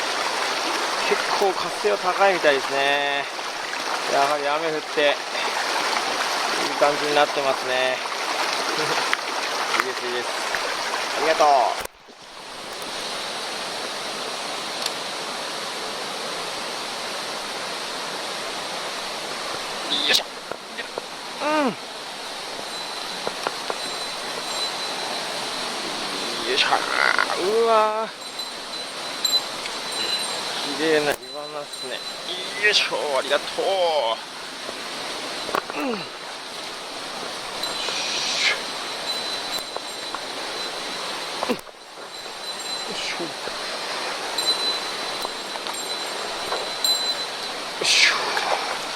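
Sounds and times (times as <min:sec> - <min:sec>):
mountain stream rushing: 0:00.0 - 0:48.9
water splash: 0:22.5 - 0:48.9.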